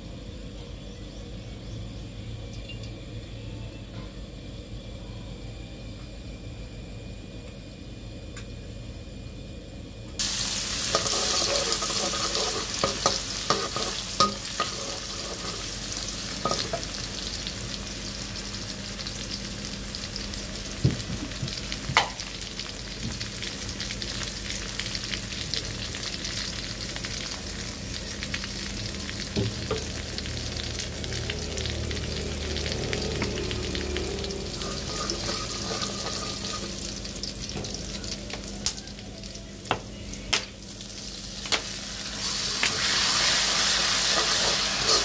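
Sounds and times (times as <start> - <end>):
garlic sizzling in hot oil: 10.2 - 45.0
metal spatula scraping a wok: 10.8 - 15.8, 34.5 - 36.8, 44.0 - 45.0
sharp taps on a wok: 21.9 - 22.2.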